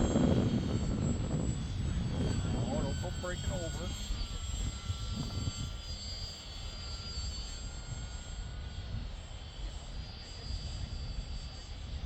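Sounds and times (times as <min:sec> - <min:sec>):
model airplane motor drone: 0:00.0 - 0:12.0
wind buffeting microphone: 0:00.0 - 0:12.0.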